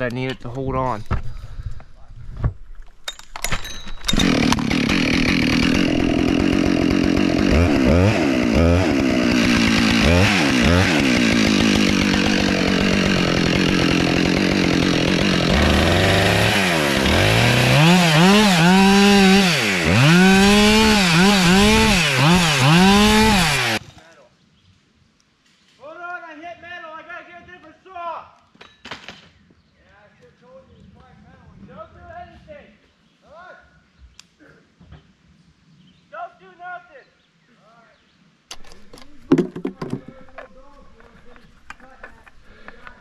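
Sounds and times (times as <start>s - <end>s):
chainsaw cutting wood: 3.9s - 23.9s, 38.5s - 43.0s.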